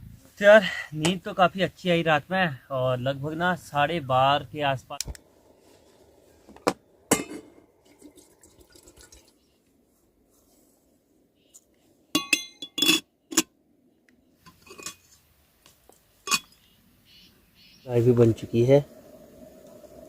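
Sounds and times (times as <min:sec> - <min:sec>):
camp dishes clinking: 0:06.5 - 0:09.3, 0:12.1 - 0:13.6, 0:14.4 - 0:15.2, 0:16.2 - 0:16.6.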